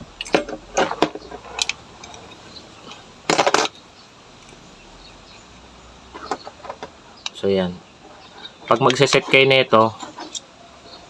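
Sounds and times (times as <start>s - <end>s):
metallic clatter: 0.0s - 3.8s.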